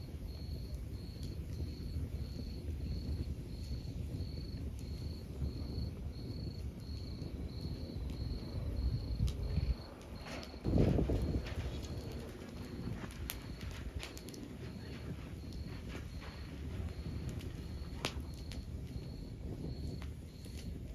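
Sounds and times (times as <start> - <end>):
cricket chirping: 0.0 - 20.9
fire crackles: 0.0 - 20.9
log fire rumbling: 0.0 - 20.9.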